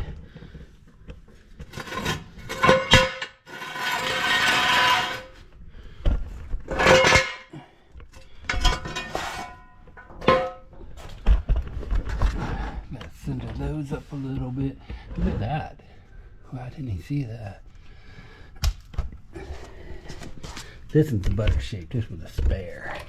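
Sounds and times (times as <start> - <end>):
metal tools clanking: 6.7 - 7.6, 8.2 - 10.7.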